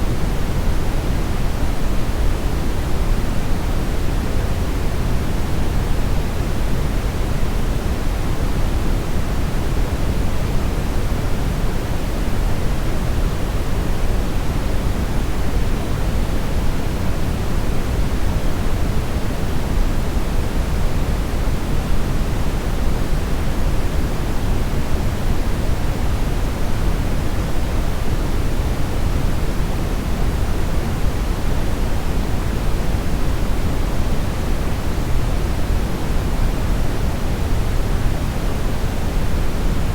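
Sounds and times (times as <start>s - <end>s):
steady brownish noise hiss: 0.0s - 39.9s.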